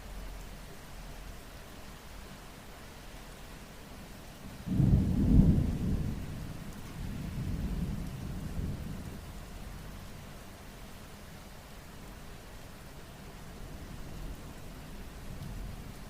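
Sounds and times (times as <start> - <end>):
rain hiss: 0.0 - 16.0
thunder rumbling: 4.6 - 9.4.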